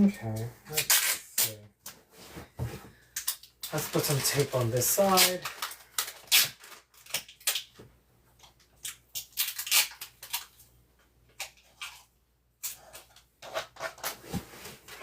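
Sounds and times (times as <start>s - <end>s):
plastic sheeting crinkling: 3.6s - 7.1s.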